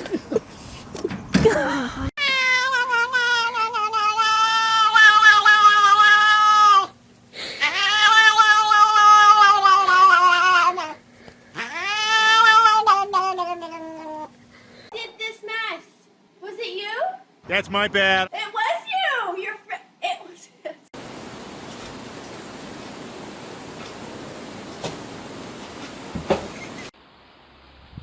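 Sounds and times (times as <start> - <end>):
cat yowling: 2.2 - 7.0, 7.6 - 11.0, 11.6 - 14.3.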